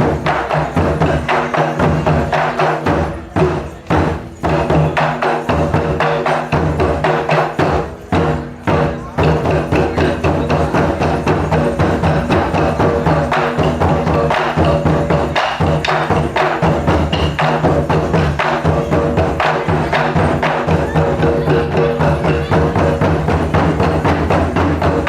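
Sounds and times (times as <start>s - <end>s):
drum and wood block strikes: 0.0s - 25.0s.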